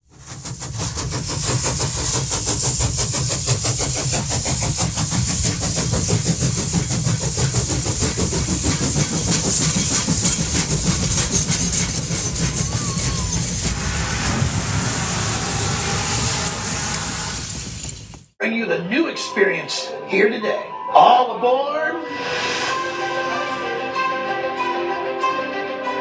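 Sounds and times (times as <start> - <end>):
train rhythmic clatter: 0.0 - 18.4
low rumble: 12.4 - 18.2.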